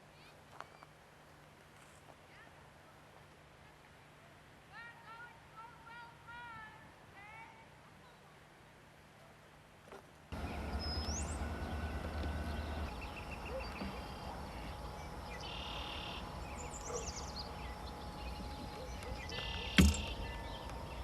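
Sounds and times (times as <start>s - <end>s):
songbirds singing and calling: 10.4s - 21.0s
sharp knock: 19.8s - 20.1s.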